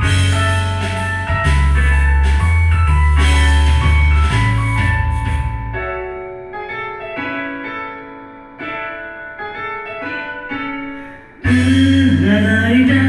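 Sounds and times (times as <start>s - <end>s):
band playing with bass: 0.0s - 5.8s, 11.4s - 13.0s
piano playing quiet chords: 0.0s - 13.0s.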